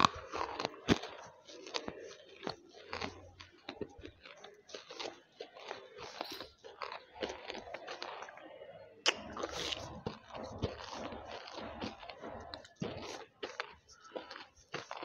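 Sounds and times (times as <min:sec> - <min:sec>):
crunching hard lumps: 0:09.0 - 0:15.0.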